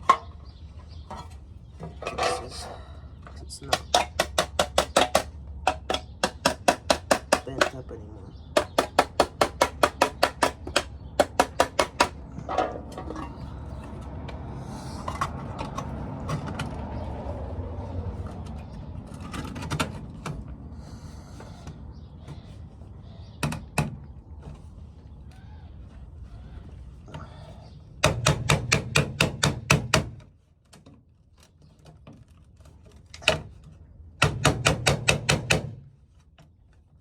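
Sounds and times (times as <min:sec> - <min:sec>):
scraping and handling noise: 0:00.0 - 0:04.2, 0:12.1 - 0:27.4
scattered knocks: 0:03.6 - 0:07.8, 0:08.5 - 0:13.4, 0:28.0 - 0:30.2, 0:34.2 - 0:35.8.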